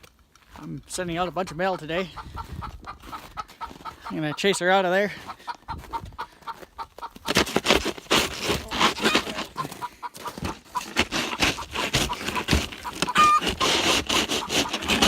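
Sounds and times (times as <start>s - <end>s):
hen clucking: 0.9s - 15.0s
scraping and rustling: 7.1s - 15.0s.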